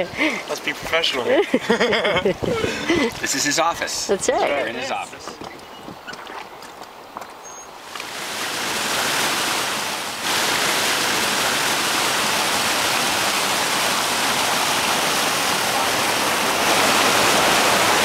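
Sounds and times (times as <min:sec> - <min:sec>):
whitewater rushing: 0:07.8 - 0:18.0.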